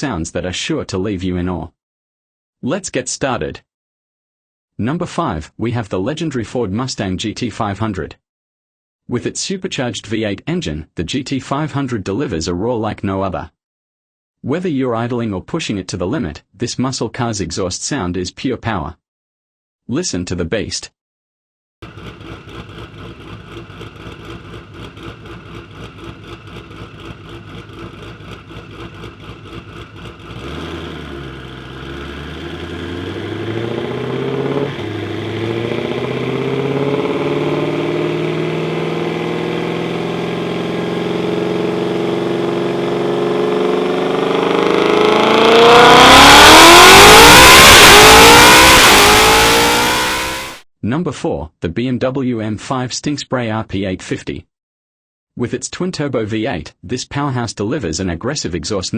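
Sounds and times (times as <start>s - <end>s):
car engine exhaust accelerating: 21.8s - 50.6s.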